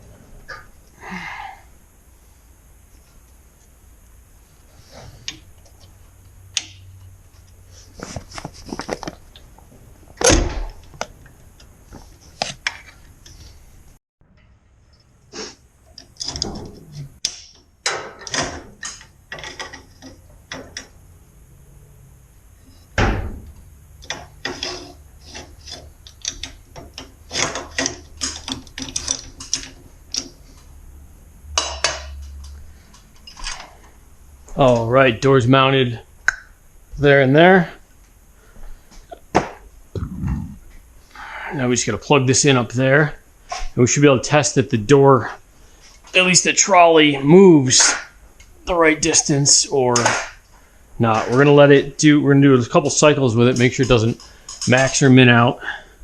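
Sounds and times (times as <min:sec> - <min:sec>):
hand tools clicking and clanking: 0:24.0 - 0:30.7, 0:53.4 - 0:55.1.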